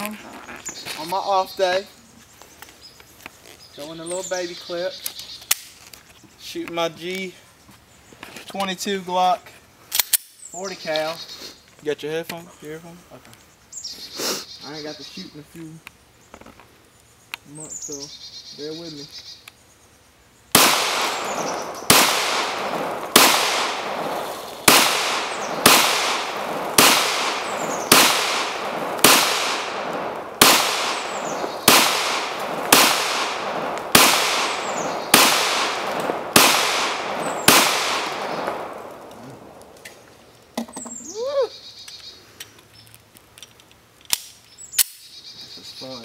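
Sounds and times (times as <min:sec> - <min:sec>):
pistol shots echoing: 0:20.5 - 0:39.8.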